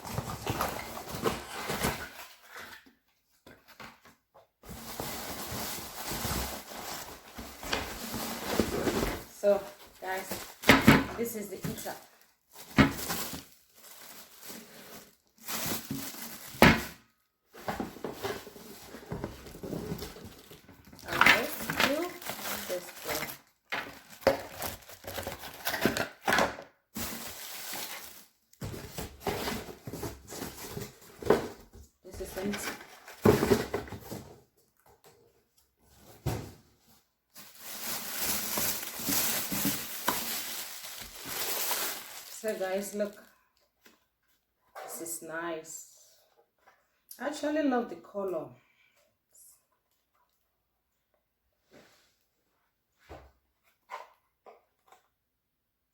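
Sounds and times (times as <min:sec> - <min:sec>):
packaging crinkling and rustling: 0:04.7 - 0:31.5, 0:37.0 - 0:43.6.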